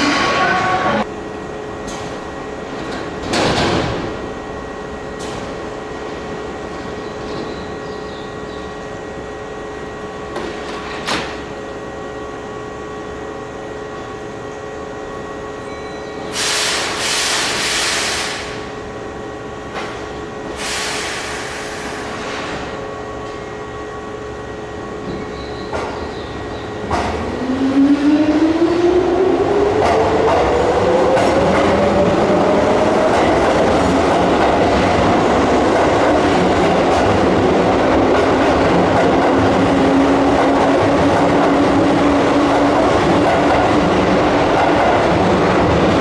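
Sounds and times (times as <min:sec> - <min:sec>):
electric train equipment humming: 0:00.0 - 0:46.0
compressed air hissing: 0:16.3 - 0:18.6, 0:20.6 - 0:22.6.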